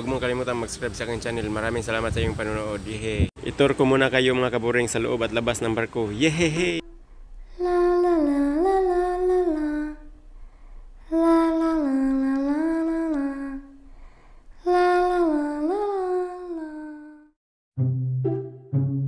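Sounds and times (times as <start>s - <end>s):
person humming a slow tune: 6.8s - 10.2s, 11.1s - 13.8s, 14.6s - 17.4s.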